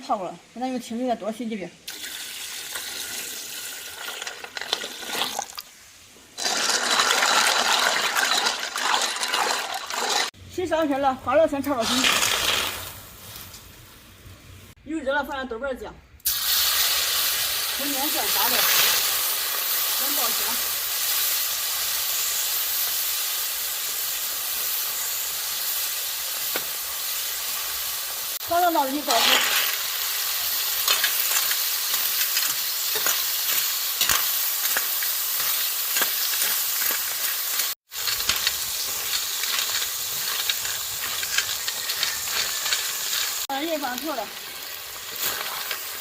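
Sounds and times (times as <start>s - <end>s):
aromatics sizzling in hot oil: 0.0s - 10.4s, 11.6s - 14.8s, 16.2s - 46.0s
water running and splashing: 1.9s - 5.7s, 6.4s - 10.4s, 28.3s - 46.0s.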